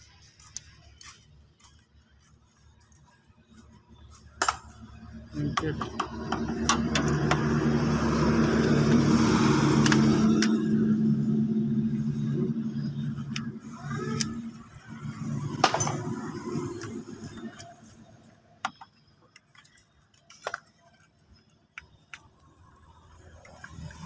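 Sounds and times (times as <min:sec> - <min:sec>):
car engine humming: 0:04.4 - 0:19.6.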